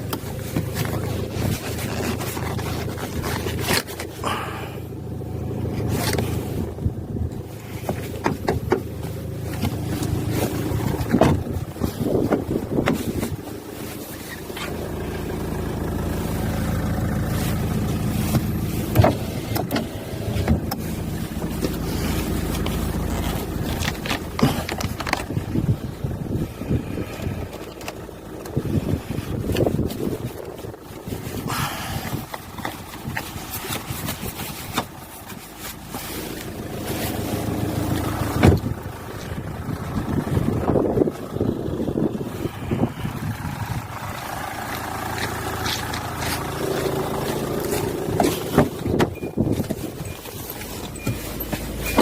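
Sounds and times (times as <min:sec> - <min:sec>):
car engine idling: 0:00.0 - 0:52.0
wind buffeting microphone: 0:10.1 - 0:13.6, 0:25.0 - 0:27.5, 0:28.1 - 0:34.7, 0:38.1 - 0:45.1.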